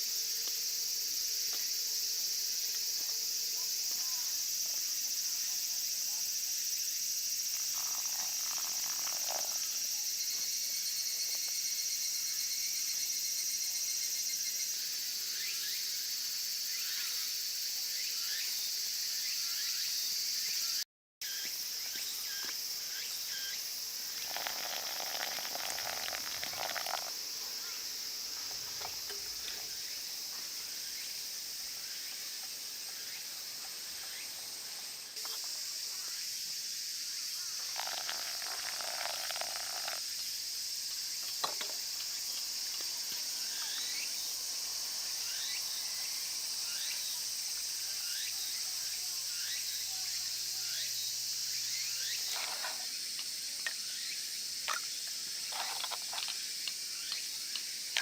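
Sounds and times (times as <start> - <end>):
food sizzling in a pan: 7.5 - 10.2, 21.3 - 40.5.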